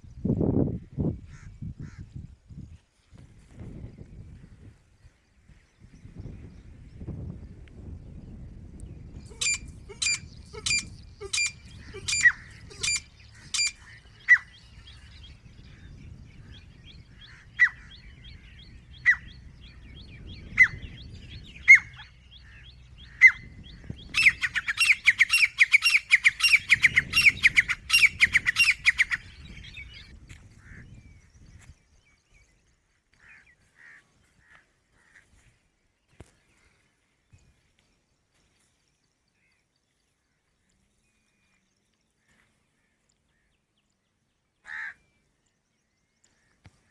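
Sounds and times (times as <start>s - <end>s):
francolin calling: 9.0s - 31.0s.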